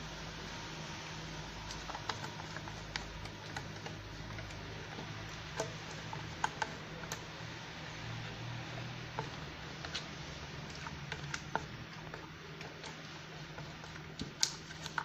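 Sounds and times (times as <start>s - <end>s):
steady low hum: 0.0s - 15.0s
utensils clicking against bowl: 1.7s - 7.4s, 8.1s - 15.0s.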